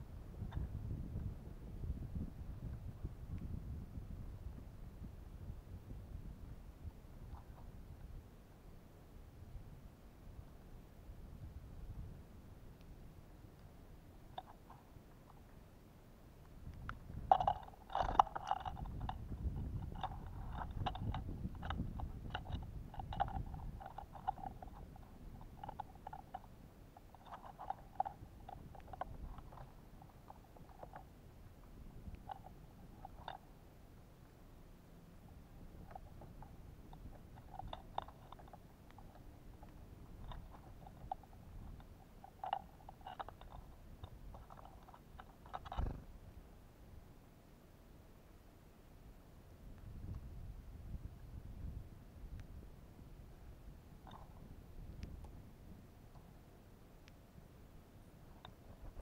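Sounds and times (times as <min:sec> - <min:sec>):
animal crunching seeds: 0:14.2 - 0:15.6, 0:16.8 - 0:33.6, 0:35.2 - 0:46.1
tapping and scraping: 0:16.8 - 0:33.4, 0:35.4 - 0:46.0
feeder jostled rumble: 0:16.8 - 0:33.6, 0:34.9 - 0:46.4, 0:53.2 - 0:56.5.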